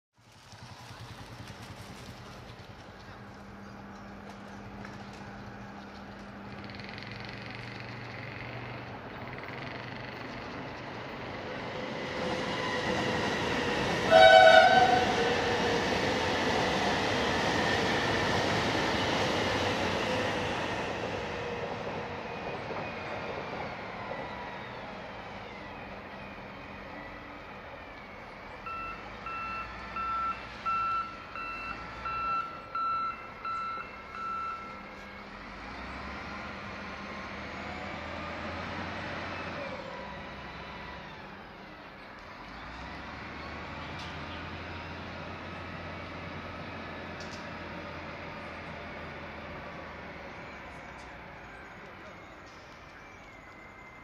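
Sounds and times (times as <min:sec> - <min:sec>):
train rumbling over a bridge: 0:00.2 - 0:54.0
train horn blast: 0:14.0 - 0:15.4.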